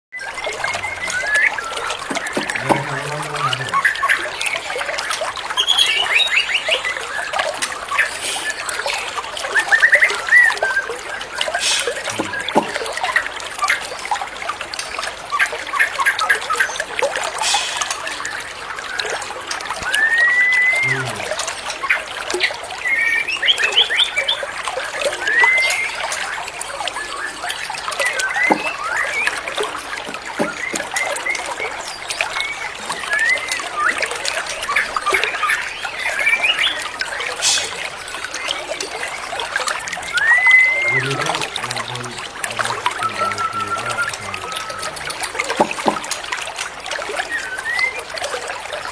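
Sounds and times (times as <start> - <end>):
water trickling and splashing: 0.1 - 48.9
songbird whistling and chattering: 0.6 - 4.2, 11.6 - 13.2, 25.2 - 26.3, 27.0 - 31.4, 40.0 - 41.6, 42.6 - 46.1.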